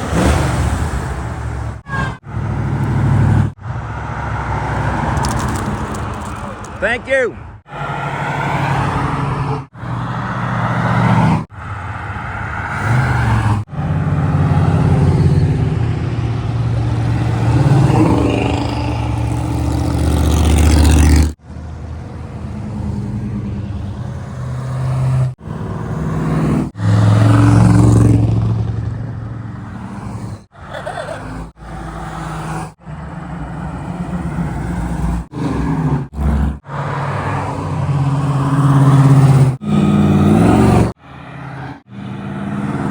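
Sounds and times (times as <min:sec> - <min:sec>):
cars driving past: 0:00.0 - 0:42.9.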